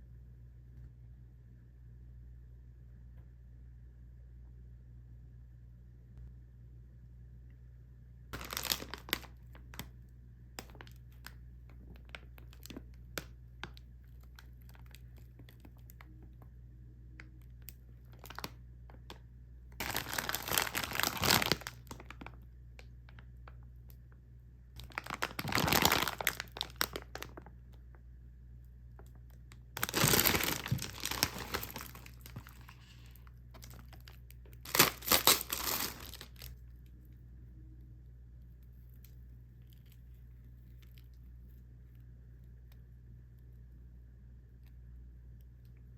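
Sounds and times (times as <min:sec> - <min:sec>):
plastic packaging crinkling and tearing: 0:08.4 - 0:09.9, 0:10.6 - 0:16.1, 0:17.6 - 0:19.2, 0:19.8 - 0:22.4, 0:24.8 - 0:27.5, 0:29.7 - 0:36.6.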